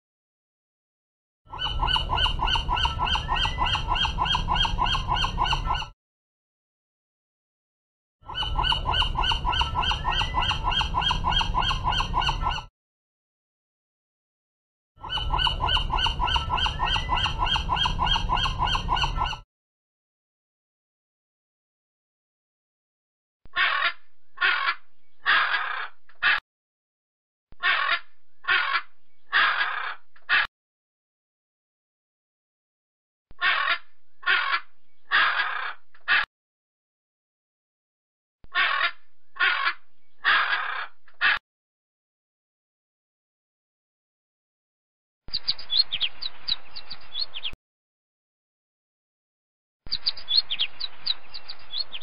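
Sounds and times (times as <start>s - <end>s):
gull calling: 1.5s - 5.9s, 8.2s - 12.7s, 15.0s - 19.4s, 38.6s - 41.4s
macaw squawking: 1.5s - 5.9s, 8.3s - 12.7s, 15.0s - 19.4s, 23.5s - 26.4s, 27.6s - 30.5s, 33.4s - 36.3s, 38.5s - 41.4s, 45.3s - 47.6s, 49.9s - 52.0s.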